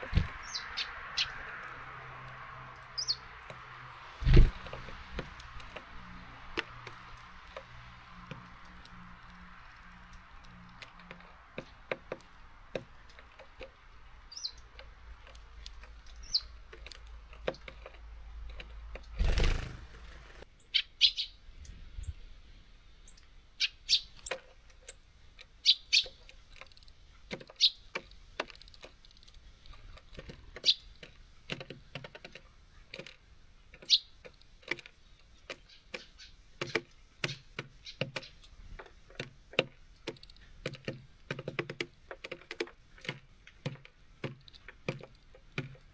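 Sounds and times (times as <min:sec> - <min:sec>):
high bird chirps: 0:00.0 - 0:01.5, 0:02.9 - 0:03.4, 0:20.6 - 0:21.4, 0:23.6 - 0:24.2
birds tapping on feeder: 0:00.0 - 0:20.4, 0:23.9 - 0:45.9.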